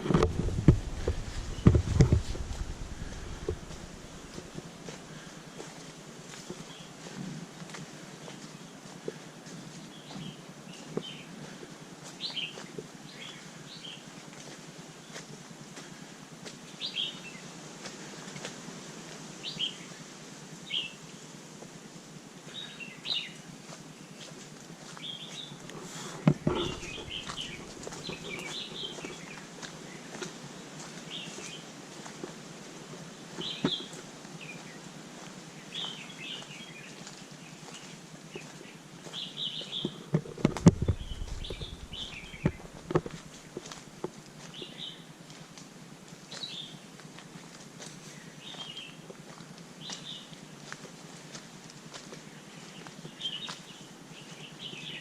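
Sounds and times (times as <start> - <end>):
low thumps: 0.0 - 4.6, 26.2 - 28.4, 40.2 - 43.2
steady outdoor hiss: 0.0 - 55.0
sharp knocks: 0.1 - 4.0
small birds chirping: 0.2 - 5.6, 25.0 - 31.7, 33.1 - 34.8, 35.5 - 45.2, 46.3 - 51.4, 52.1 - 55.0.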